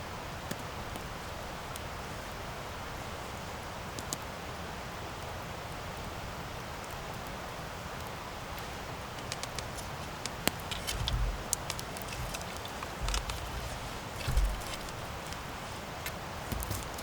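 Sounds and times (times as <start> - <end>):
campfire hissing: 0.2 - 17.0
burning wood crackling and popping: 7.9 - 17.0
low rumbles: 10.1 - 17.0.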